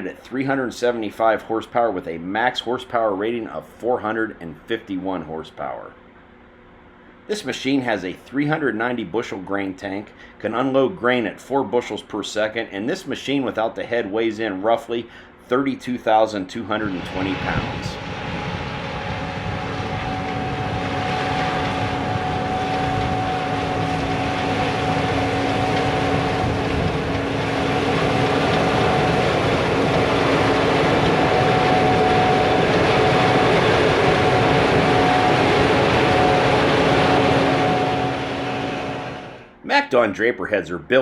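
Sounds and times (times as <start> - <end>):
combine harvester running: 13.1 - 39.6.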